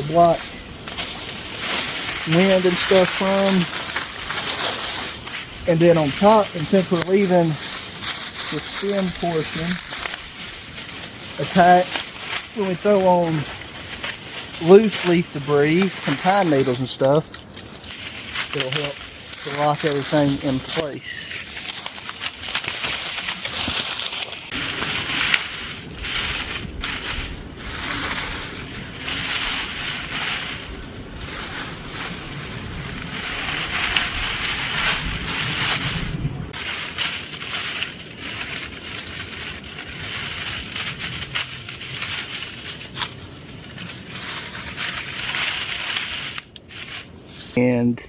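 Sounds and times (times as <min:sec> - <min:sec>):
dry leaves crunching and rustling: 0:00.0 - 0:47.6
low rumble: 0:16.8 - 0:45.3.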